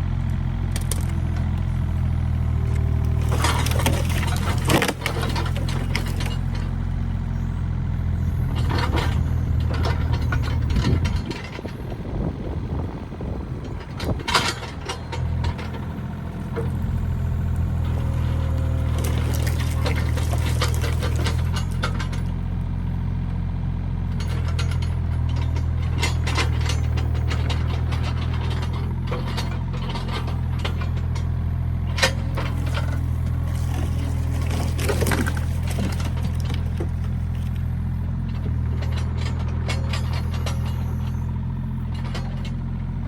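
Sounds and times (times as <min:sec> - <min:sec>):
excavator diesel engine running: 0:00.0 - 0:43.0
clanks and knocks: 0:08.4 - 0:12.1, 0:13.4 - 0:22.4, 0:24.1 - 0:43.0.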